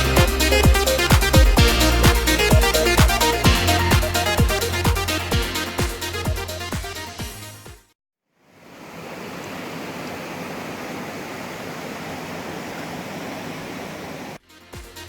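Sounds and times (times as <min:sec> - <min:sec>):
steady rushing noise: 0:00.0 - 0:06.6
electronic background music: 0:00.0 - 0:07.9, 0:14.4 - 0:15.0.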